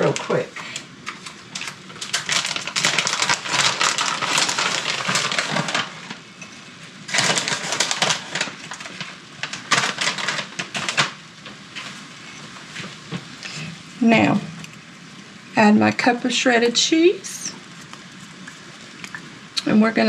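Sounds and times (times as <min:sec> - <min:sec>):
plastic bag crinkling: 0:01.1 - 0:06.3, 0:07.0 - 0:11.2.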